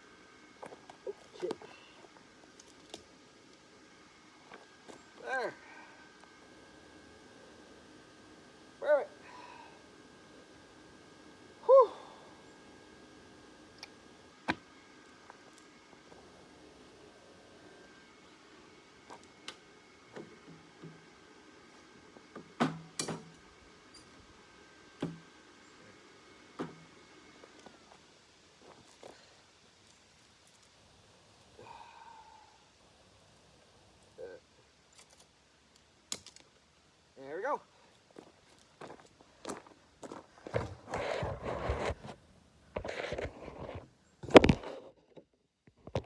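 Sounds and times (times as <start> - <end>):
scraping and rustling: 40.4 - 45.1.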